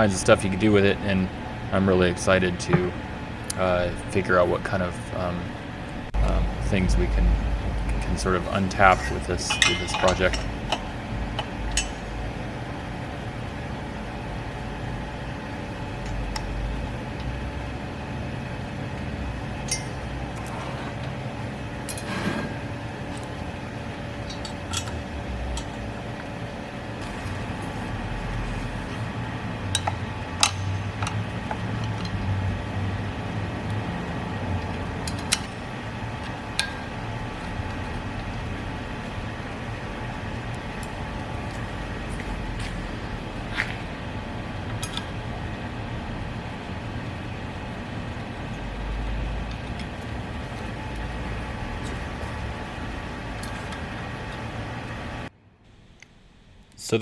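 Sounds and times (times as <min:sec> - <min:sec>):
low hum and rumble: 0:00.0 - 0:57.0.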